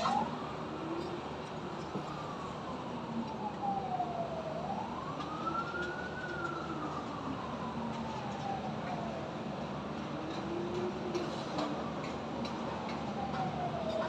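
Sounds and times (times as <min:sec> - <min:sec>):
city traffic noise: 0:00.0 - 0:14.0
emergency siren wailing: 0:00.0 - 0:14.0.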